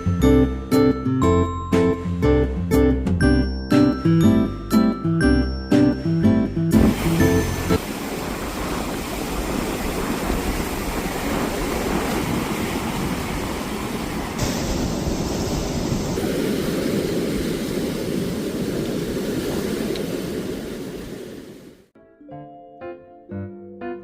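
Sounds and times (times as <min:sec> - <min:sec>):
waves washing onto shore: 0:06.8 - 0:21.9.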